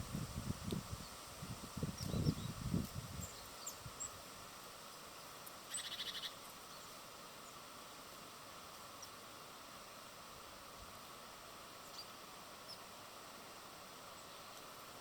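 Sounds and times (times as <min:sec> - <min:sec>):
steady hiss: 0:00.0 - 0:15.0
small birds chirping: 0:01.8 - 0:04.2, 0:05.4 - 0:08.0, 0:08.7 - 0:09.3, 0:11.7 - 0:13.0.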